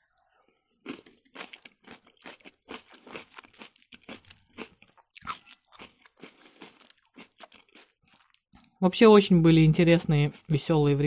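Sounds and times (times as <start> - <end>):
person chewing: 0.1 - 8.8.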